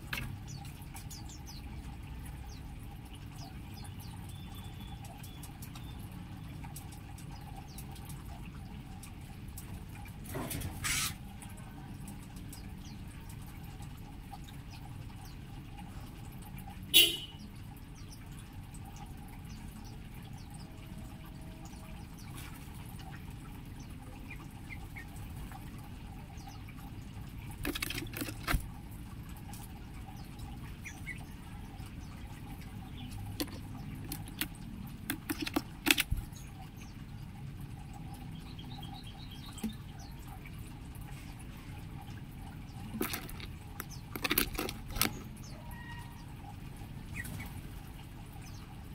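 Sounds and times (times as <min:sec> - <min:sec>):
sharp clicks and knocks: 0:33.2 - 0:36.2, 0:42.8 - 0:45.4
faint bird chirps: 0:45.0 - 0:46.3.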